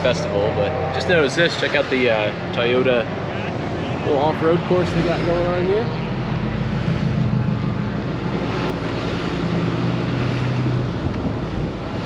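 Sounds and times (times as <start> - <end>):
wind on microphone: 4.6 - 12.0.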